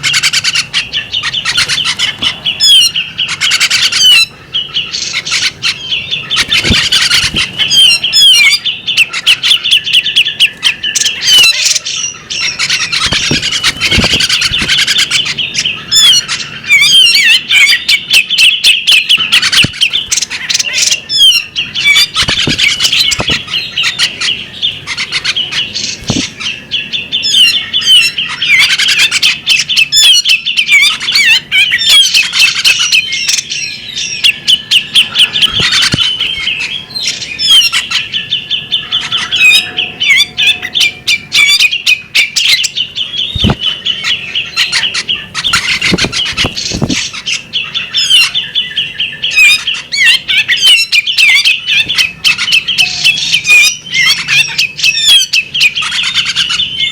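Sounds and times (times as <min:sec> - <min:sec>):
bird singing: 0:00.0 - 0:56.9
sharp bird ticks: 0:21.8 - 0:24.2.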